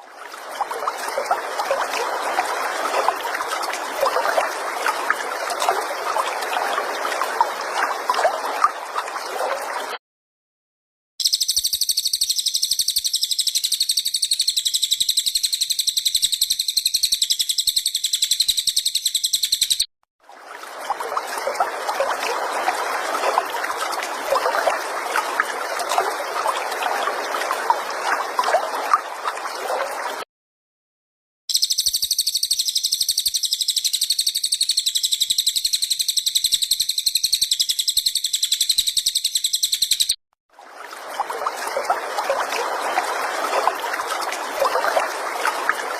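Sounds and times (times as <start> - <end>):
trickling water: 0.0 - 10.0, 11.3 - 30.2, 31.5 - 45.9
buzzy bird trill: 11.2 - 19.9, 31.5 - 40.2.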